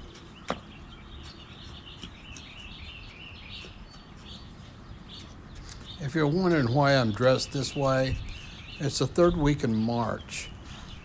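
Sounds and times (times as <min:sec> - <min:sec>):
small birds chirping: 0:00.0 - 0:11.0
low outdoor rumble: 0:04.1 - 0:11.0.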